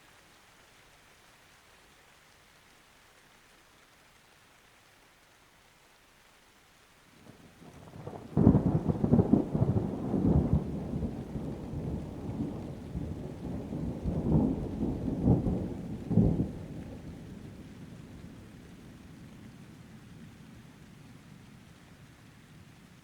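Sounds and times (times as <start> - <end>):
thunder rumbling: 7.6 - 19.0.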